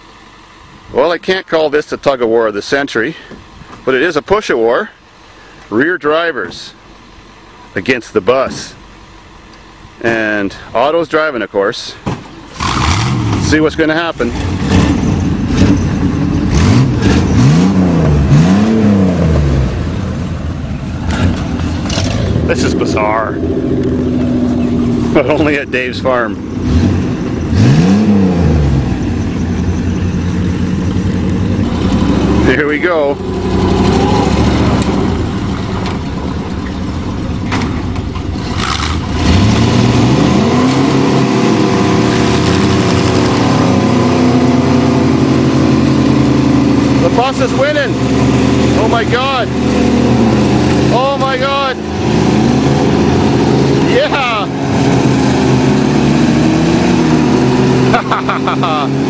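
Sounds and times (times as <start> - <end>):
vehicle engine revving: 12.4 - 59.0.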